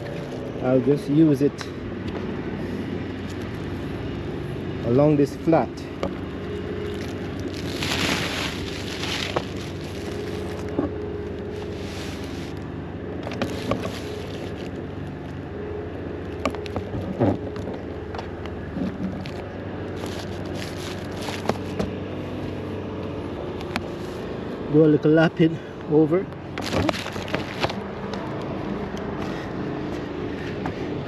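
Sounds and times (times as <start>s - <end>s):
engine-like hum: 0.0s - 31.0s
roofing sheet rustling and crackling: 6.9s - 12.6s, 13.3s - 14.8s, 19.3s - 21.7s
backing membrane peeling: 7.0s - 10.7s.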